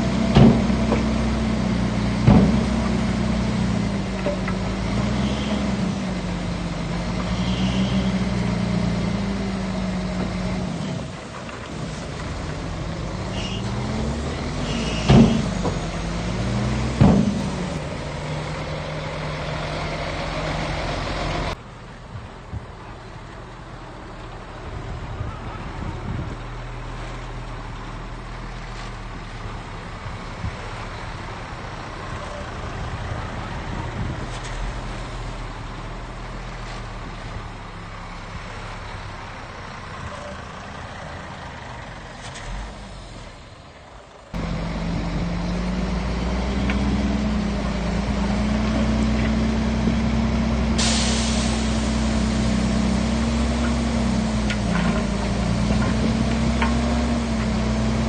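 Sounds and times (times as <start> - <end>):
close engine humming: 0.0 - 21.6, 27.0 - 58.0
heavy machinery diesel engines: 0.0 - 58.0.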